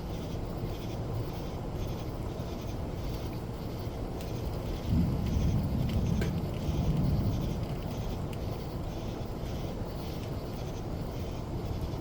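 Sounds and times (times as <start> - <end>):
steady rain: 4.6 - 10.4
distant thunder rumbling: 4.8 - 8.6.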